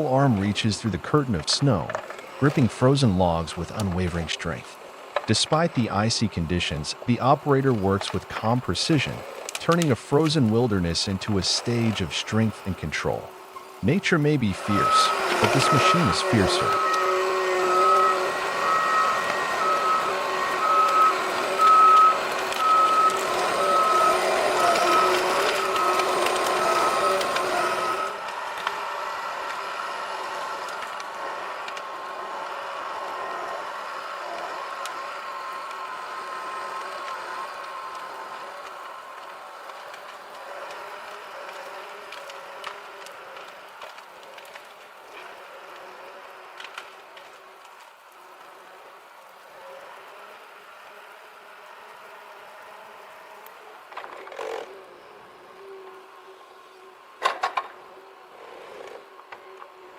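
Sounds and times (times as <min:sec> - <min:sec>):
machine engine running: 0:00.2 - 0:47.4
reversing alarm beeping: 0:13.8 - 0:28.2.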